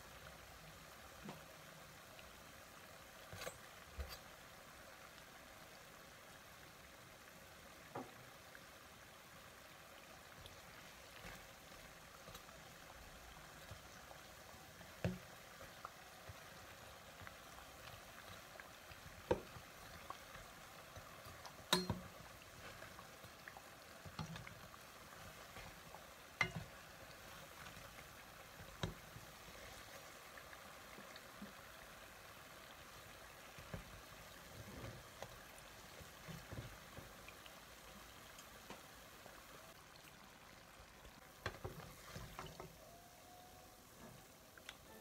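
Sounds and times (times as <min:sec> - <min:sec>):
dough frying in oil sizzling: 0:00.0 - 0:45.0
metal spoon knocking against pan: 0:21.7 - 0:22.1.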